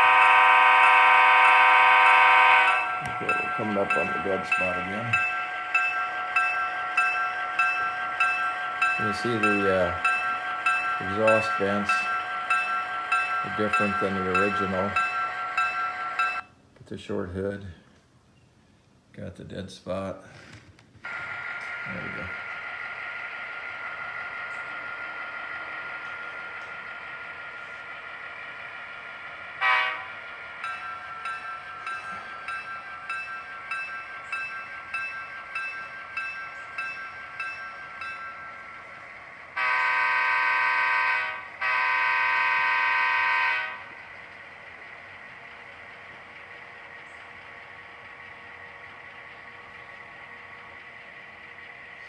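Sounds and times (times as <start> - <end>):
locomotive horn blasts: 0.0 - 16.4, 29.5 - 32.6, 39.5 - 44.1
locomotive bell ringing: 0.0 - 16.5, 21.1 - 52.0
model locomotive engine sound: 0.0 - 17.8, 21.0 - 52.0.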